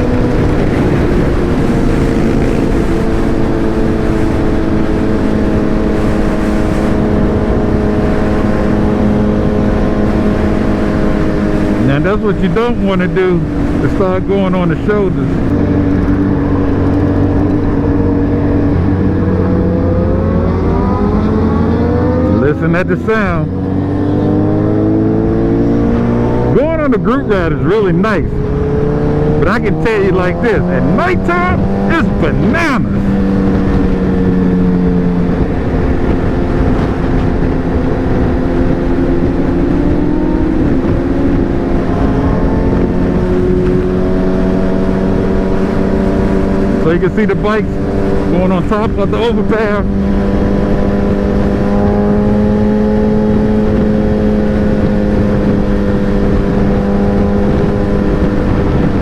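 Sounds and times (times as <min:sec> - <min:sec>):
motorcycle engine steady note: 0:00.0 - 0:23.5
motorcycle accelerating: 0:00.0 - 0:59.0
wind rushing over microphone: 0:00.0 - 0:59.0.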